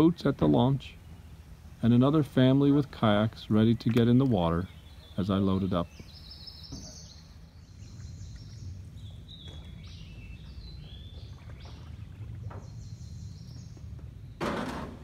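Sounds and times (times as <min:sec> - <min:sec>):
songbirds whistling: 0:03.6 - 0:14.6.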